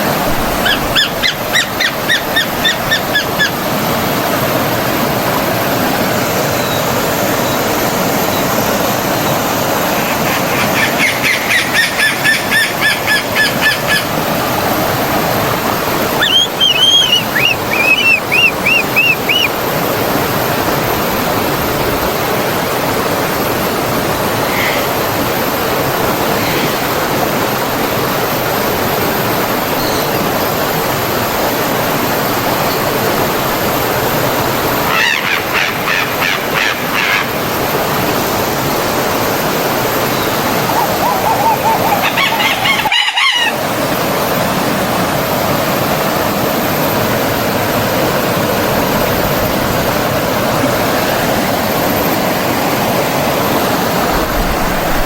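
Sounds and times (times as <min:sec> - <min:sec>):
flowing stream rushing: 0:00.0 - 0:55.0
bird calls: 0:00.3 - 0:03.8, 0:06.4 - 0:14.3, 0:16.0 - 0:19.7, 0:39.9 - 0:43.6.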